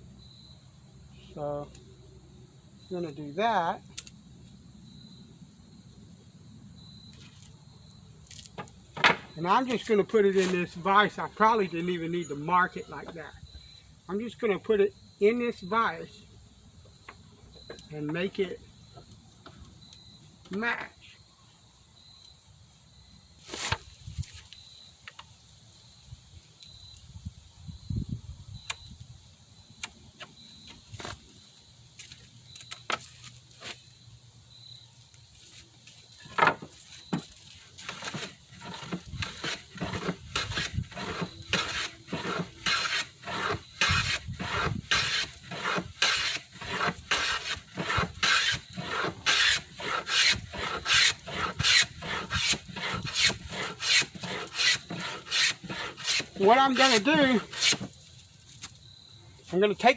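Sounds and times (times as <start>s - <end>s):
hand plane strokes on wood: 37.8s - 57.9s.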